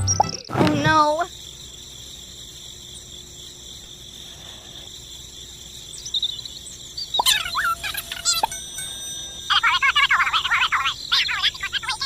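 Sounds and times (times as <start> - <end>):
crickets chirring: 0.0 - 12.0
squeaky rising and falling calls: 7.0 - 12.0.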